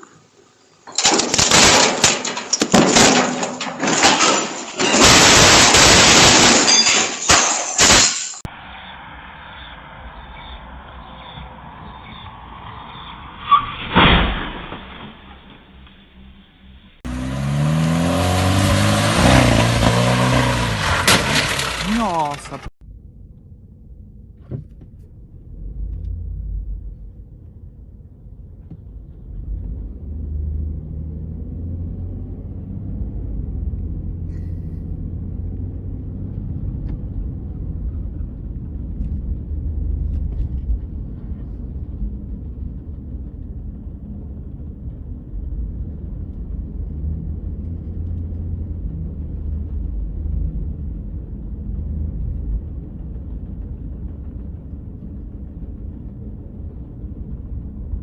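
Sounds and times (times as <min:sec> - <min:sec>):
car engine and road noise: 0:07.8 - 0:58.0.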